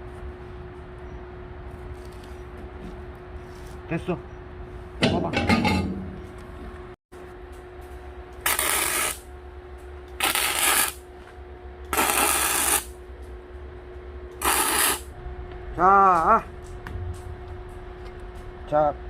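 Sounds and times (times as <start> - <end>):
arc welder crackling: 7.4 - 15.2.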